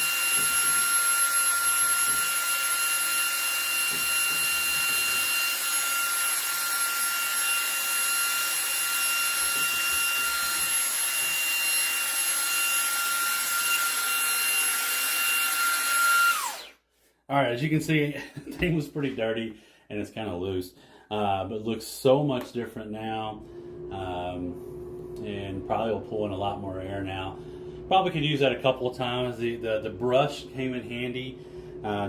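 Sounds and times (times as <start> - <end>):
handheld vacuum motor whine: 0.0 - 16.8.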